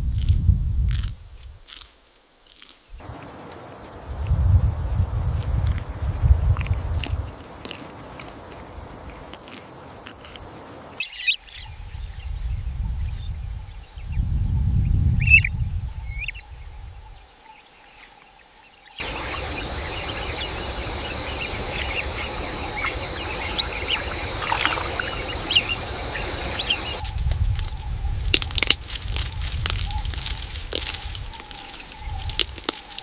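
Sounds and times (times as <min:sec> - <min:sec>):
high insect drone: 0:03.0 - 0:06.1, 0:19.0 - 0:28.7
bird chirps: 0:19.0 - 0:27.0
rushing background noise: 0:19.0 - 0:31.5.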